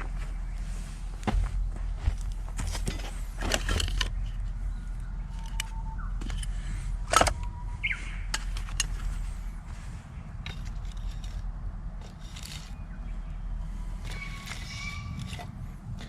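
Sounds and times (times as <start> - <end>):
bird whistling: 4.7 - 6.2, 7.4 - 8.3, 14.1 - 15.4.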